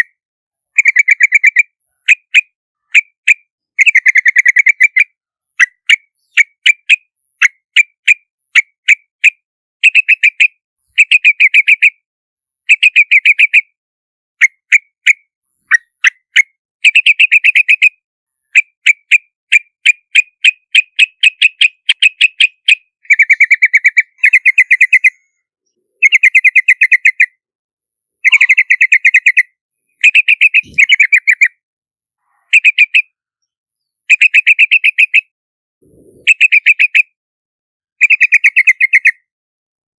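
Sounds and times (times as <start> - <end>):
bird chirping bubbly calls: 23.1 - 25.3, 28.2 - 29.4, 30.1 - 31.5, 35.8 - 36.8.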